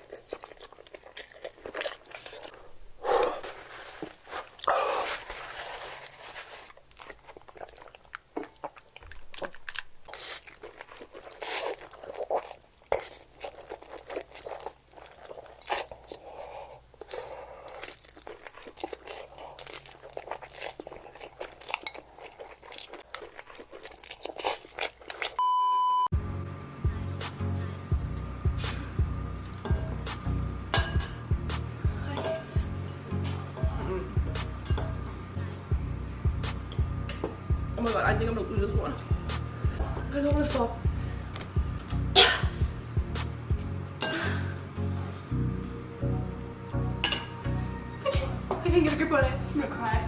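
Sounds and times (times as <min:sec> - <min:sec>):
person chewing crunchy food: 0:00.0 - 0:25.4
short steady beep: 0:25.4 - 0:26.1
music: 0:26.1 - 0:50.0.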